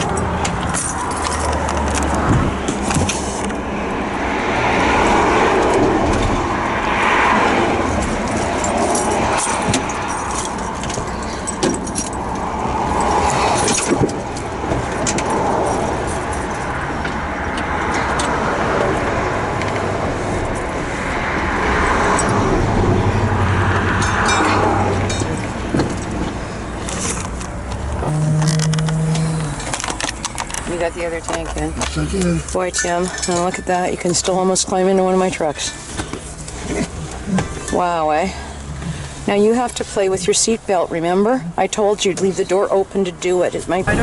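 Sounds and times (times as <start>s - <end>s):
vehicle engine running: 25.2s - 34.9s
low hum: 27.7s - 32.5s.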